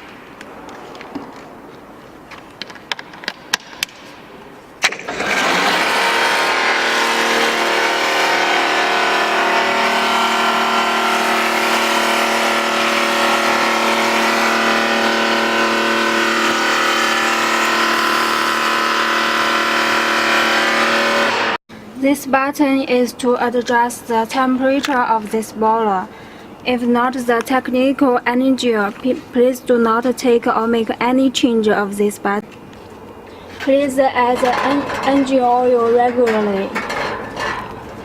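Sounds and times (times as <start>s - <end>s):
washing machine humming: 5.1s - 21.6s.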